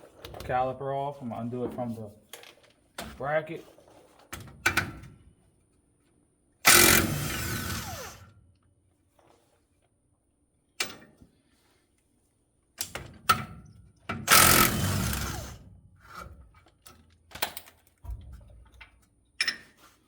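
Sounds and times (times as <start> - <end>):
power tool running: 6.7 - 8.3, 14.3 - 15.6
metallic clicks and clanks of tools: 16.8 - 19.8.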